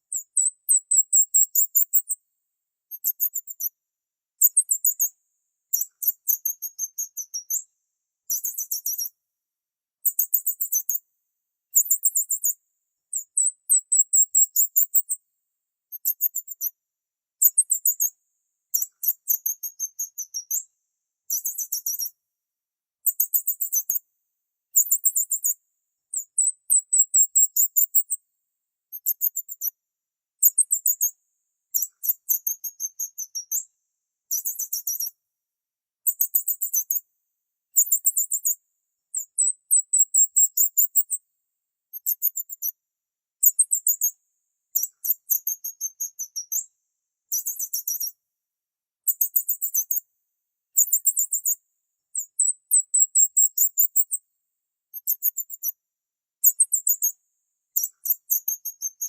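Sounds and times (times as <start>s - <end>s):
bird chirping: 47.3s - 48.1s.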